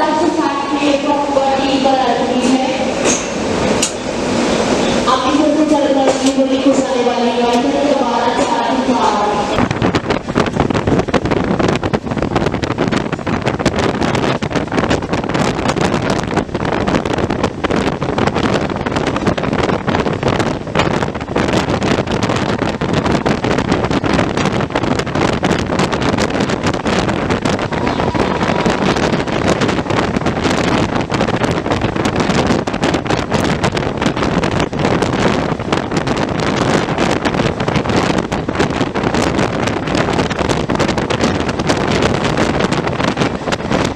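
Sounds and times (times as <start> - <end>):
train rattling: 0.0 - 43.9
wind buffeting microphone: 0.0 - 43.9.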